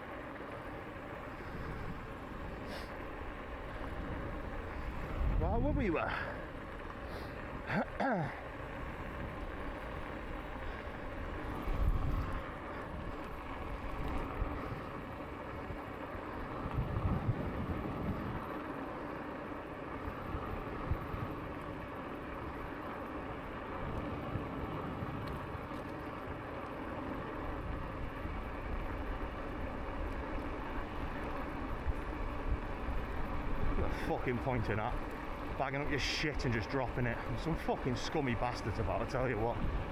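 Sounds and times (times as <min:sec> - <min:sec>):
bicycle tyre riding noise: 0:00.0 - 0:39.9
wind buffeting microphone: 0:00.8 - 0:07.7, 0:08.5 - 0:18.6, 0:27.4 - 0:39.9.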